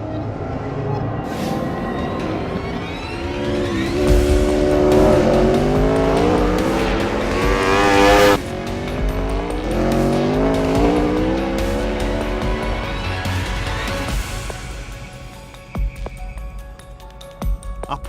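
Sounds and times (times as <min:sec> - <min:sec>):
music: 0:00.0 - 0:18.0
motorcycle engine accelerating: 0:02.1 - 0:14.3.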